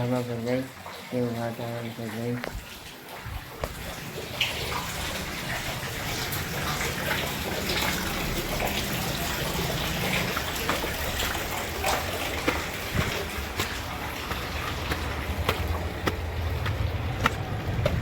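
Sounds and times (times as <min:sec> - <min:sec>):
heavy rain pouring: 0:02.5 - 0:18.0
low rumble: 0:12.8 - 0:18.0.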